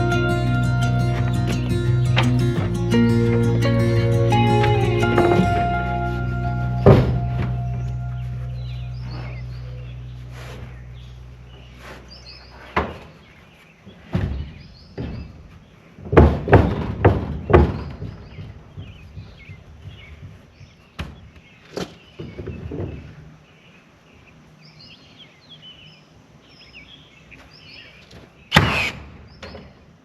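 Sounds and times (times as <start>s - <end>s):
background music: 0.0s - 10.7s
birds chirping: 0.0s - 16.1s, 17.4s - 30.0s
irregular knocks: 6.8s - 7.9s.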